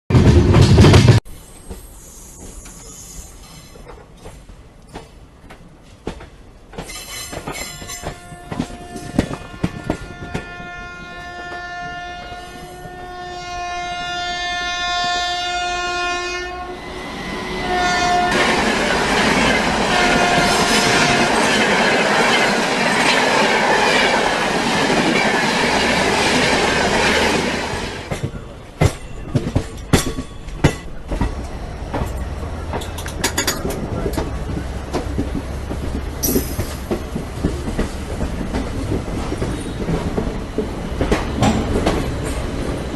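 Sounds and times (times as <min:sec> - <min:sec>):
train rushing past: 0:00.1 - 0:05.3, 0:06.1 - 0:42.9
train horn: 0:07.7 - 0:21.6
wheel clicks over rail joints: 0:28.1 - 0:42.5.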